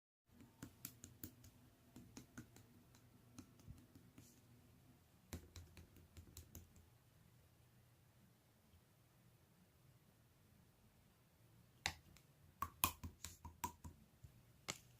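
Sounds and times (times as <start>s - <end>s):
faint clicks and taps: 0.3s - 4.5s, 5.3s - 7.0s, 11.8s - 14.9s
faint low hum: 0.3s - 14.9s.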